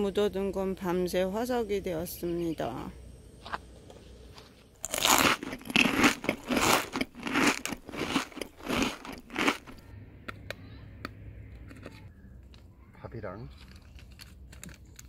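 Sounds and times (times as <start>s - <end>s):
crunchy chewing of food: 4.3s - 9.9s, 13.4s - 15.0s.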